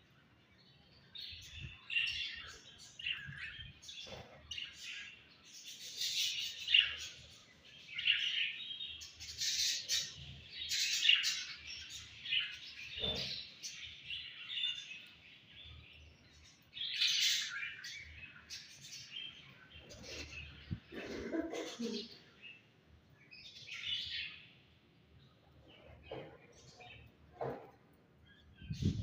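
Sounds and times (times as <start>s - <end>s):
budgerigars chirping and warbling: 1.3s - 21.0s.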